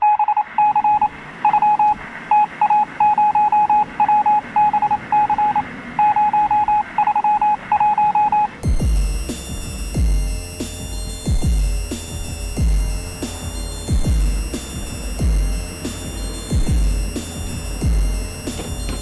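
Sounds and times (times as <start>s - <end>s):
electronic beeping: 0.0s - 19.0s.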